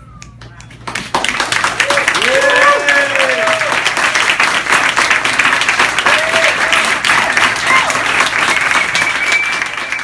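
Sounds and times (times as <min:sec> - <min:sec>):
person whistling long note: 0:00.0 - 0:00.4, 0:08.5 - 0:10.0
audience applauding: 0:00.8 - 0:10.0.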